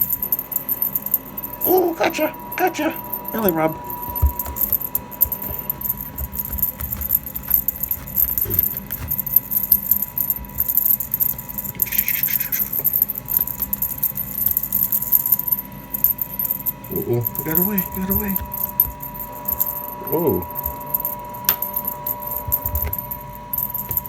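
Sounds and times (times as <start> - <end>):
cat toy jingling and clicking: 0.0 - 24.0
faint steady hum: 0.0 - 24.0.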